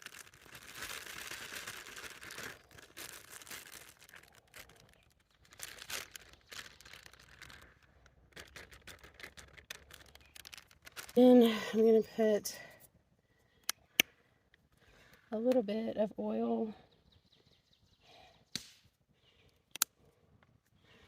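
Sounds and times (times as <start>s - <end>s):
package crinkling and tearing: 0.0s - 11.7s.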